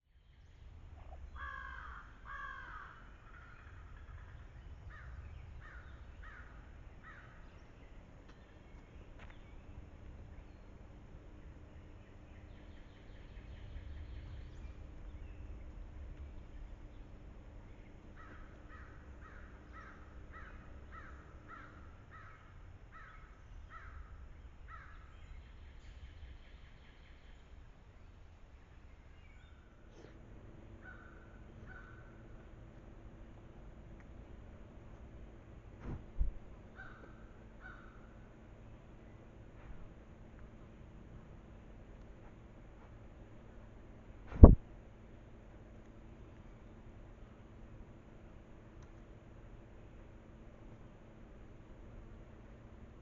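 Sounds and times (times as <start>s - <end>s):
low background rumble: 0.0s - 53.0s
crow cawing: 1.4s - 4.0s, 4.9s - 7.4s, 18.2s - 24.1s, 24.7s - 25.0s, 30.8s - 32.2s, 36.8s - 38.2s
bird calling: 17.8s - 26.1s.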